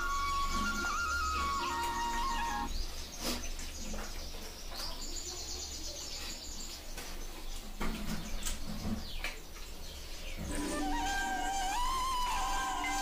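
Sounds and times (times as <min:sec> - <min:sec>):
bird trilling: 0:00.0 - 0:02.8, 0:10.4 - 0:13.0.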